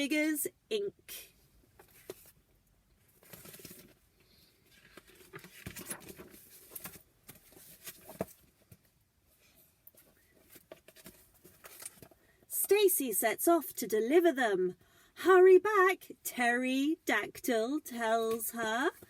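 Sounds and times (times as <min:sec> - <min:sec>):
book pages turning: 0:01.8 - 0:02.4, 0:03.2 - 0:04.0, 0:04.6 - 0:08.8, 0:09.9 - 0:12.2
paper rustling: 0:03.1 - 0:04.0, 0:04.7 - 0:08.8, 0:09.9 - 0:12.2.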